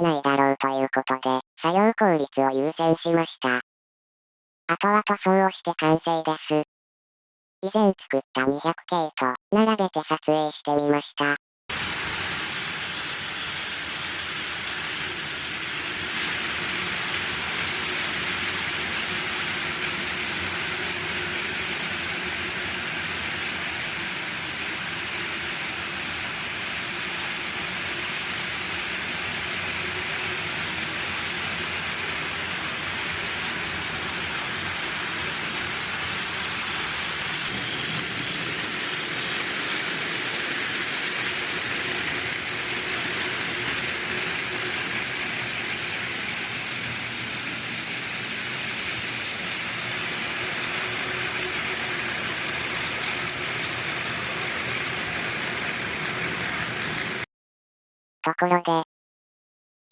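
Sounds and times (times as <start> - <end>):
toy train motor whir: 11.8 - 57.2.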